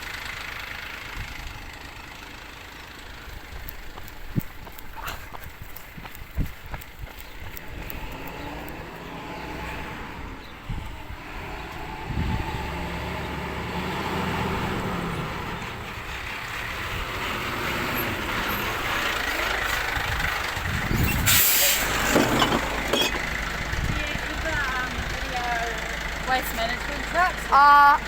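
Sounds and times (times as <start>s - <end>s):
truck engine running: 0.0s - 28.0s
air brakes hissing: 20.9s - 23.2s.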